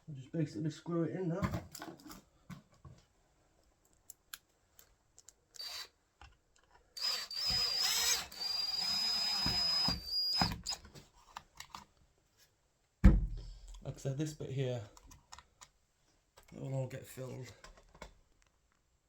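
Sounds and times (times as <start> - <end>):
power drill whining: 5.6 - 5.9, 7.0 - 10.9
knock: 13.0 - 13.5.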